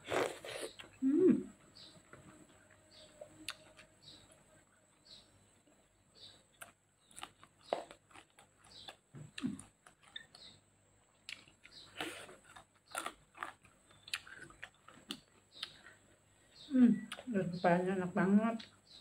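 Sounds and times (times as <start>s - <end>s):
wet chewing and mouth smacks: 11.2s - 15.9s.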